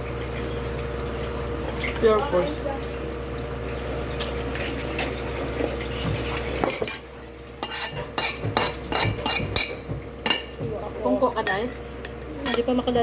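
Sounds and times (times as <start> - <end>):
cutlery clinking on plates: 6.2 - 7.0, 7.6 - 10.6.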